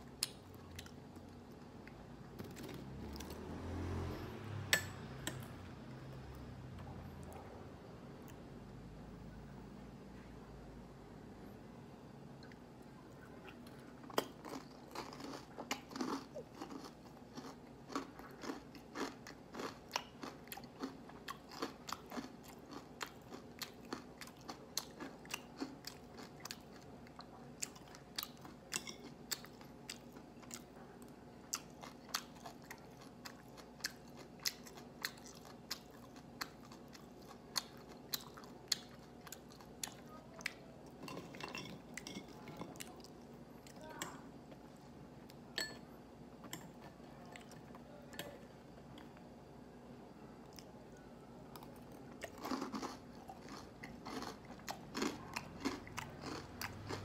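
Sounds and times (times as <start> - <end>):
crunchy chewing of fried pork: 13.5 - 41.3, 51.6 - 57.0.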